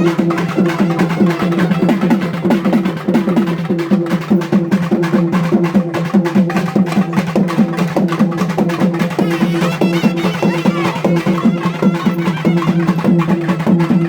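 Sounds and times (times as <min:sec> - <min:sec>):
fast drum beat: 0:00.0 - 0:14.0
held melodic tone: 0:09.2 - 0:14.0.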